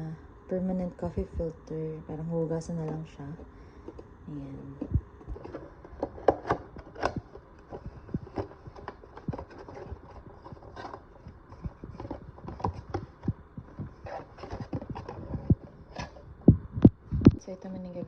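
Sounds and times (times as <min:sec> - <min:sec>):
plastic parts knocking and clicking: 0:04.8 - 0:16.2.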